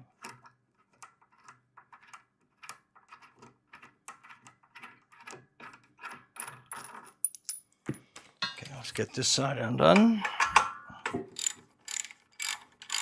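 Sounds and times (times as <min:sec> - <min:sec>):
wrench clicking on bolts: 0:10.0 - 0:13.0.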